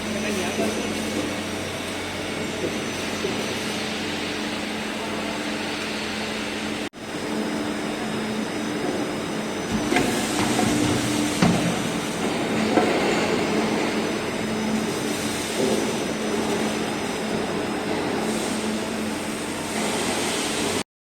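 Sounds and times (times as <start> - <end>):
machine humming and clattering: 0.0 - 20.8
sharp knocks: 9.7 - 12.9.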